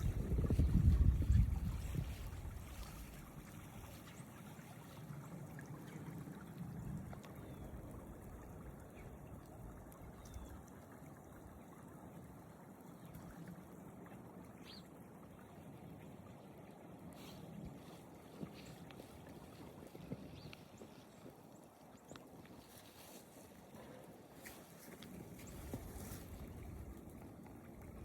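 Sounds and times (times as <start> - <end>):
faint water trickling: 0.0 - 28.0.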